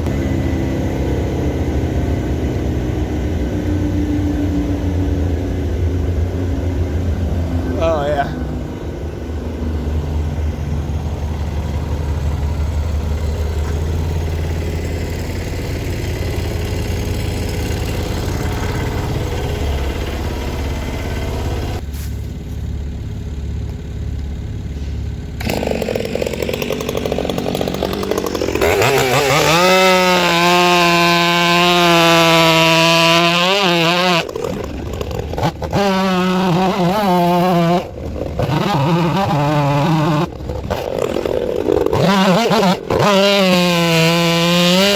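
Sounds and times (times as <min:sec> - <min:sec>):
machine engine rumbling: 0:00.0 - 0:44.9
chainsaw revving and cutting: 0:10.0 - 0:21.8, 0:24.7 - 0:44.9.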